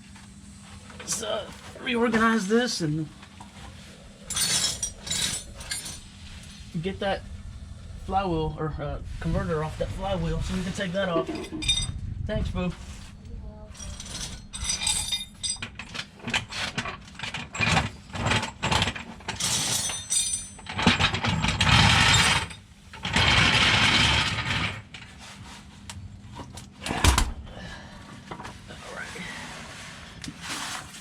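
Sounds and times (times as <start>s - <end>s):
tools clicking and clanking on metal: 11.2s - 11.9s.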